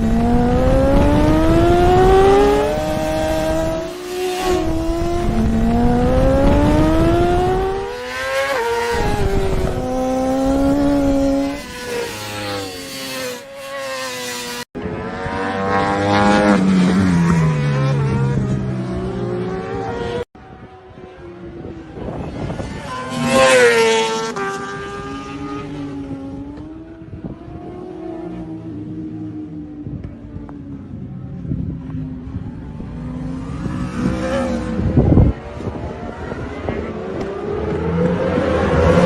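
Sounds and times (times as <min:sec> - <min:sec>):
racing motorcycle engines accelerating: 0:00.0 - 0:39.0.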